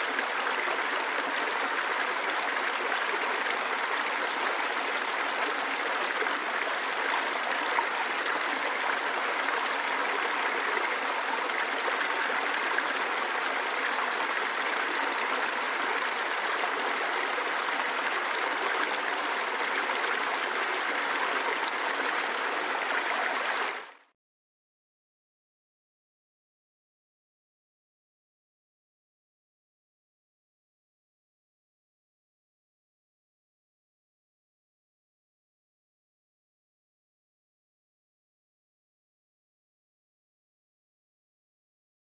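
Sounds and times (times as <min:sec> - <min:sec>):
running water rushing: 0:00.0 - 0:24.1.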